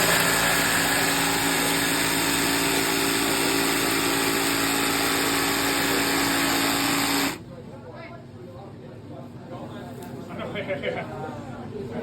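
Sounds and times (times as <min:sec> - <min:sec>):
power tool motor running: 0:00.0 - 0:07.4.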